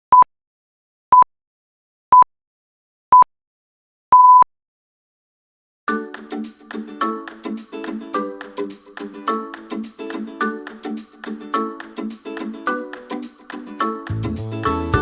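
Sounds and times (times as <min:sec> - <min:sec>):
electronic countdown beeps: 0:04.2 - 0:04.4
plucked-string music: 0:05.9 - 0:15.0.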